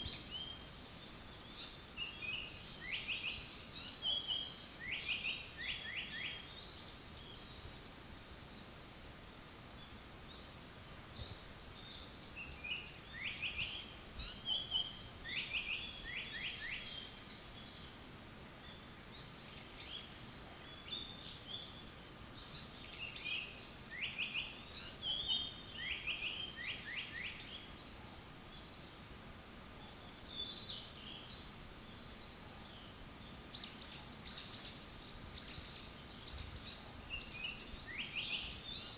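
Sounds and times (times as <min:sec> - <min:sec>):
steady background hiss: 0:00.0 - 0:38.9
bird singing high whistled notes: 0:10.9 - 0:17.9, 0:19.4 - 0:29.2, 0:33.5 - 0:38.9.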